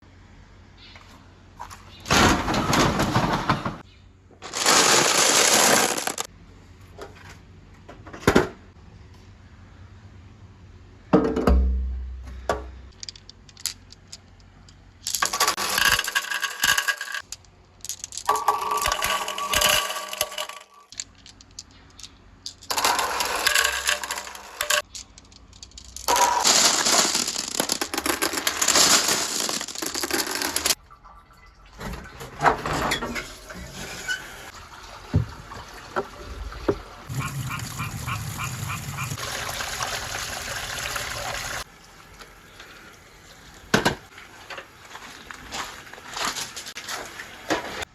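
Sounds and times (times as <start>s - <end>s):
marbles rolling through plastic pipe: 4.5s - 6.3s, 15.0s - 30.8s.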